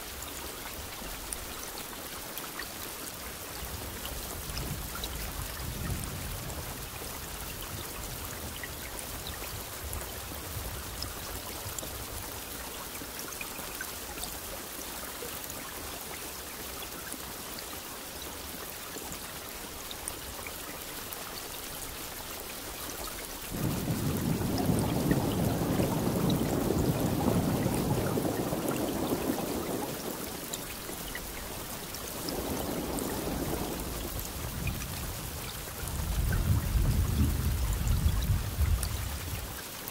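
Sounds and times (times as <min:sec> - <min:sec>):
rain hiss: 0:00.0 - 0:39.9
thunder rumbling: 0:23.5 - 0:39.4.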